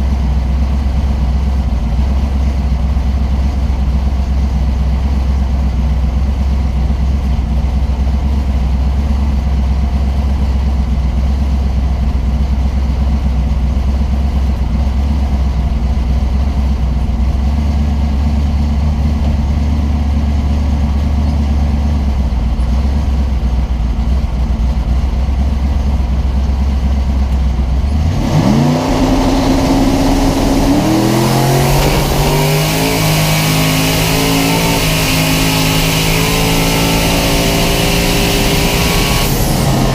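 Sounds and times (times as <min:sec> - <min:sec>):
car engine idling and revving: 0:00.0 - 0:39.9
rushing noise: 0:27.8 - 0:39.9.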